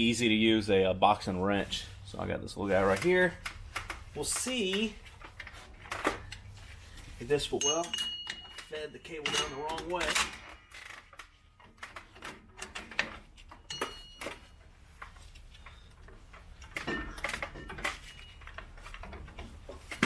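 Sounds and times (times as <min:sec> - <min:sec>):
metallic clicks and clinks: 0:07.5 - 0:19.4.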